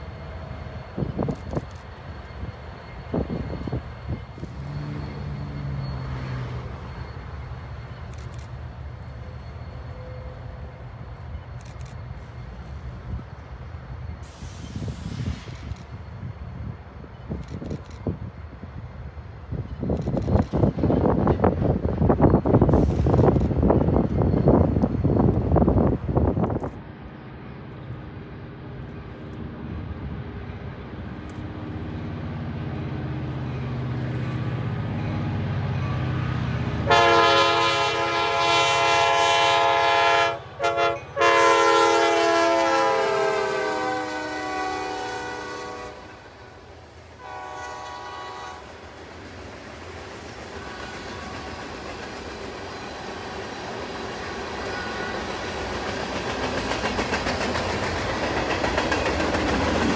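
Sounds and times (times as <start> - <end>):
diesel locomotive engine rumble: 0.0 - 59.9
locomotive air horn blasts: 36.8 - 46.4, 47.2 - 48.7.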